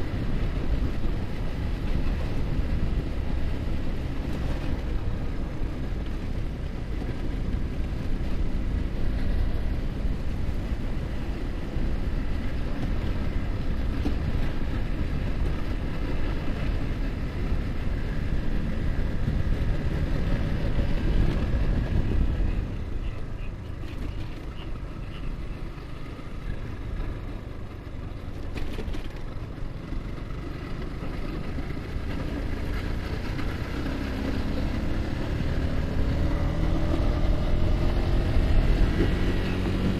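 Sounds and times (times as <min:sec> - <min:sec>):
wind noise on microphone: 0:00.0 - 0:25.0, 0:31.6 - 0:39.9
motorcycle engine running: 0:00.0 - 0:39.9.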